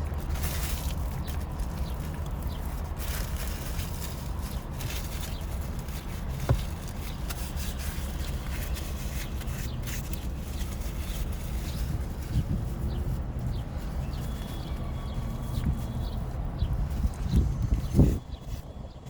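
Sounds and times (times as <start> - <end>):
chewing clicks and scrapes: 0.0 - 12.0
steady low rumble: 0.0 - 19.0.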